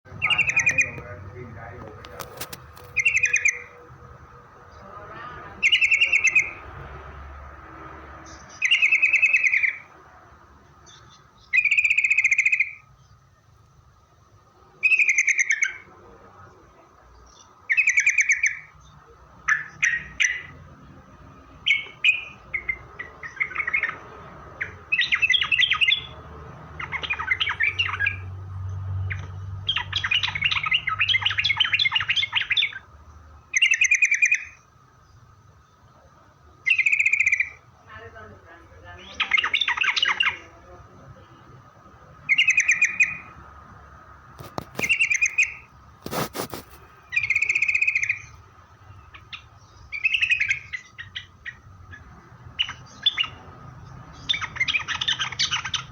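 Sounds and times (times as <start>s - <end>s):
bird singing bubbly phrases: 0.1s - 1.7s.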